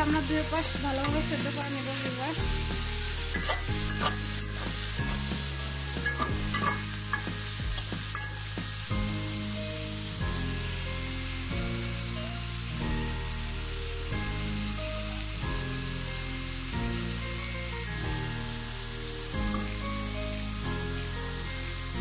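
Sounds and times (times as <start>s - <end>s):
food sizzling in hot oil: 0.0s - 22.0s
soft background music: 0.0s - 22.0s
spatula scraping a wok: 0.1s - 8.9s.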